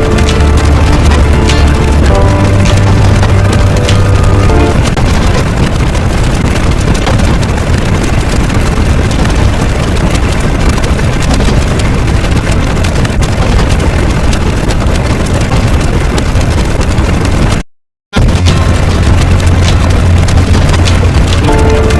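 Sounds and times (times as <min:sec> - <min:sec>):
loud engine-like rumble: 0:00.0 - 0:05.2, 0:18.2 - 0:21.9.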